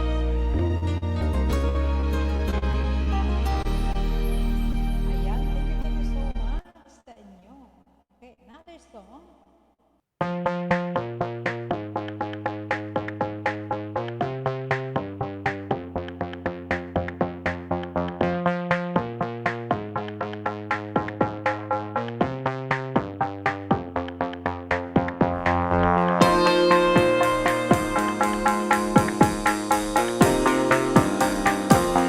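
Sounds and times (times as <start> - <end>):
synthesizer chords: 0.0 - 6.6, 10.2 - 32.0
drum machine beat: 10.2 - 32.0.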